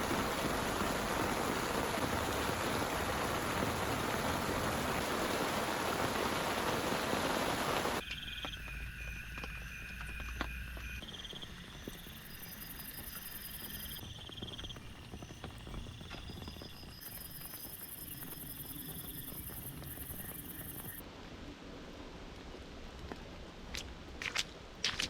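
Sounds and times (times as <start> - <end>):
insects or frogs trilling: 6.7 - 21.0.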